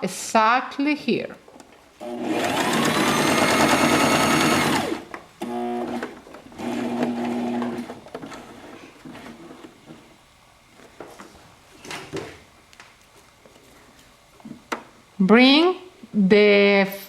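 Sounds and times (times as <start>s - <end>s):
sewing machine stitching: 2.0s - 9.7s.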